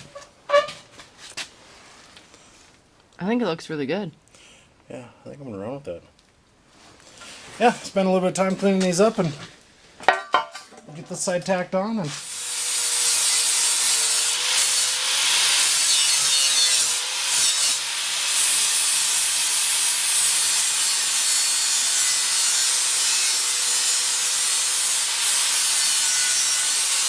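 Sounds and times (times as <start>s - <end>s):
angle grinder grinding steel: 12.2s - 27.0s.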